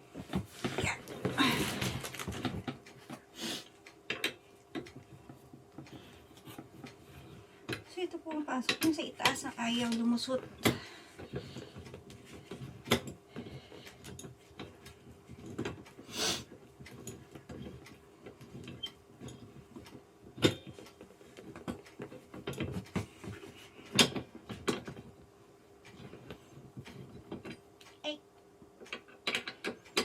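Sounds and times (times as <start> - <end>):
metal parts clicking and knocking: 28.8 - 30.0.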